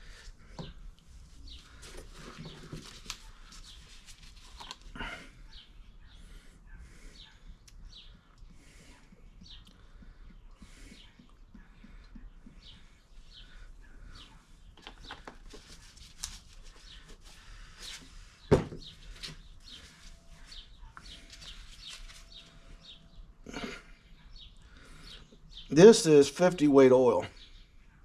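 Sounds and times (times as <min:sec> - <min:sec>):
clicks and rustles of handling: 0:01.6 - 0:04.9, 0:14.8 - 0:18.1.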